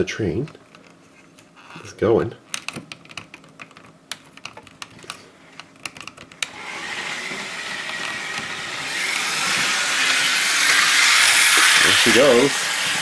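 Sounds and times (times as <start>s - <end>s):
toy train whirring: 6.4s - 13.0s
toy train clicking on track: 7.8s - 13.0s.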